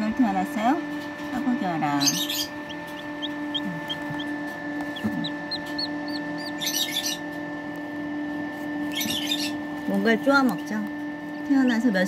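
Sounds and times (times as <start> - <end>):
brooder hum: 0.0 - 12.0
chick peeping: 1.9 - 7.2.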